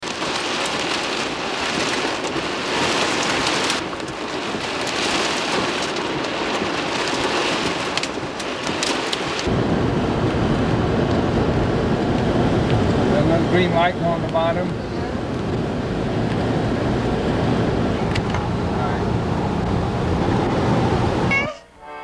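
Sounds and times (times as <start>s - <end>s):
sharp ticks of raindrops: 0.0s - 20.6s
rain falling: 0.0s - 21.4s
deep rumbling: 9.4s - 21.5s.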